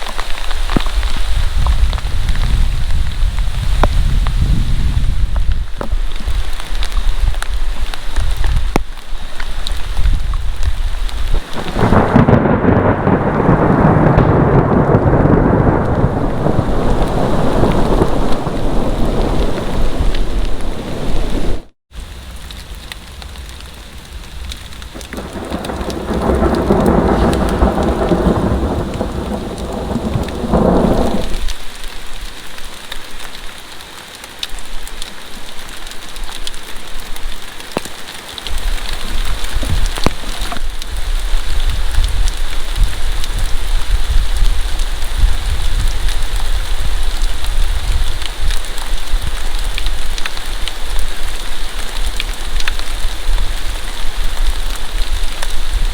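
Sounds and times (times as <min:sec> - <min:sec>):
heavy rain falling: 0:00.0 - 0:55.9
thunder rolling: 0:11.3 - 0:31.5.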